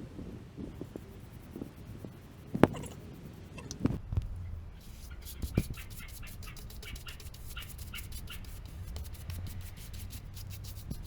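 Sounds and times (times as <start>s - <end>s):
sandpaper rubbing on wood: 4.8s - 11.0s.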